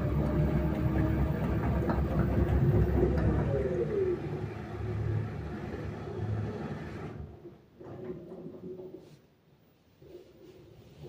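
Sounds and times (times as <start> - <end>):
vehicle engine knocking and rattling: 0.0 - 3.8.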